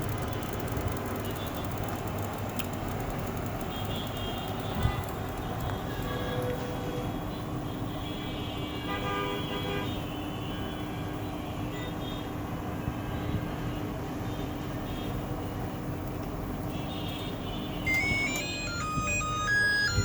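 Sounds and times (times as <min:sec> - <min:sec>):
road traffic: 0:00.0 - 0:20.0
vehicle horns tooting: 0:03.7 - 0:05.2, 0:05.8 - 0:12.2.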